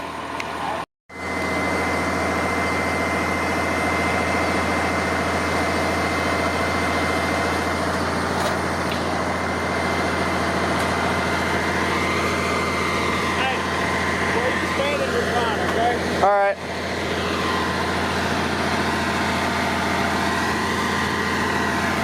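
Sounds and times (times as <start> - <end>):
crane engine running: 0.0 - 22.0
high-pitched whine: 8.8 - 22.0.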